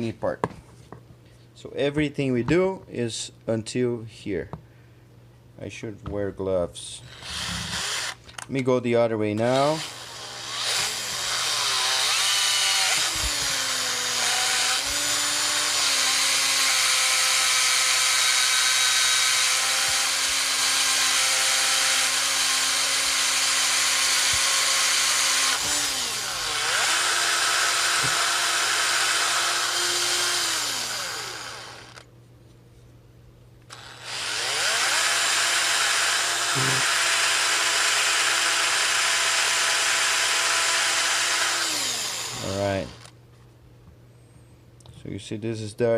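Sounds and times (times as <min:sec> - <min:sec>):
electric drill running: 0:07.1 - 0:08.2, 0:09.6 - 0:32.0, 0:33.7 - 0:43.1.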